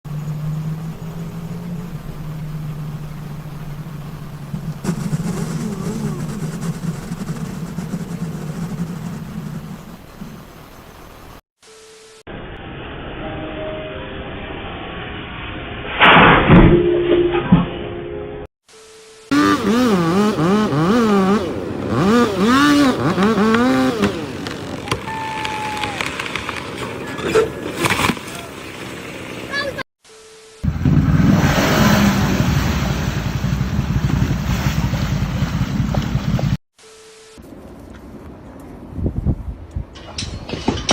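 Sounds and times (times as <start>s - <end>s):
vehicle engine running: 0.0s - 11.4s, 30.6s - 36.6s.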